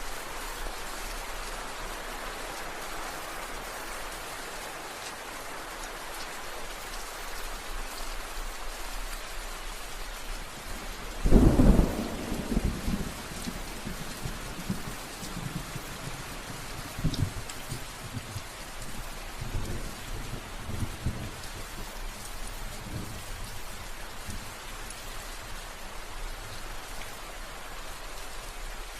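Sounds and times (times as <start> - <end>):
steady rain falling: 0.0 - 28.9
loud thunder clap rumbling: 11.3 - 14.8.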